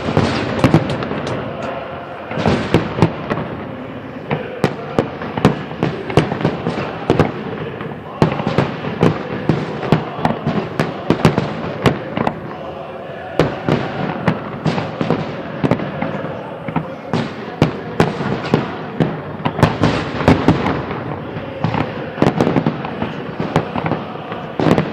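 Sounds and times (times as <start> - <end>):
firework shells bursting: 0.0 - 3.4.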